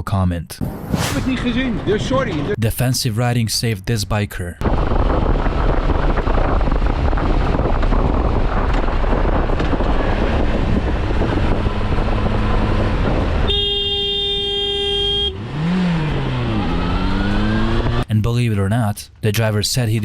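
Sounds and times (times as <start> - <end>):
wind and road noise: 0.6 - 2.6, 4.6 - 18.1
vehicle horn held: 13.4 - 15.4.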